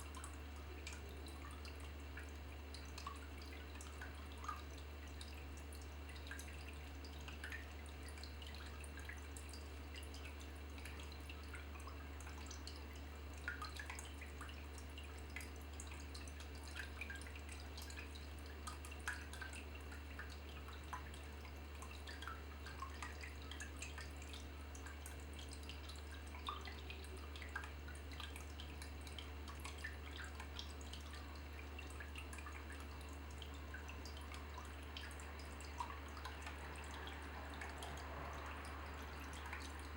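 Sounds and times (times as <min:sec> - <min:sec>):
water dripping: 0:00.0 - 0:39.9.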